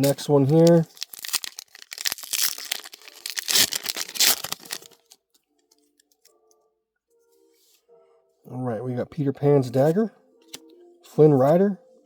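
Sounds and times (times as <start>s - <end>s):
wrapper tearing and crinkling: 0.0s - 5.2s
faint music: 0.0s - 12.0s.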